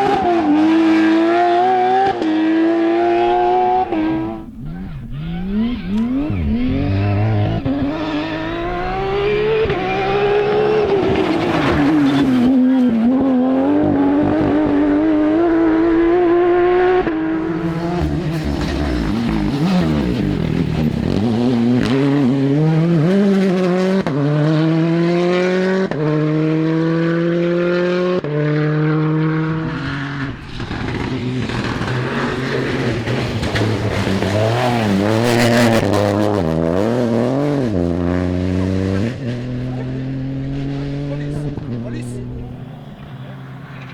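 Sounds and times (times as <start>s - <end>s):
rally car engines revving: 0.0s - 43.9s
gear upshifts: 3.3s - 13.0s, 17.4s - 23.7s.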